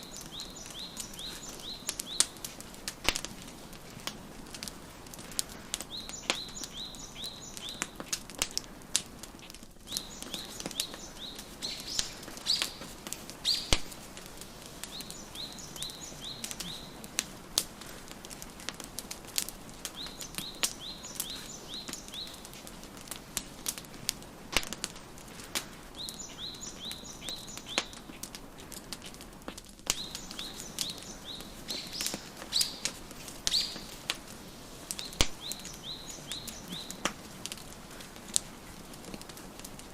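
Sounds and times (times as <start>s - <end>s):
songbird chirping: 0.0s - 3.3s, 5.1s - 8.7s, 9.8s - 17.9s, 19.7s - 22.8s, 25.9s - 28.3s, 29.9s - 39.5s
soft hiss: 0.0s - 39.9s
wood fire crackling and popping: 0.0s - 39.9s.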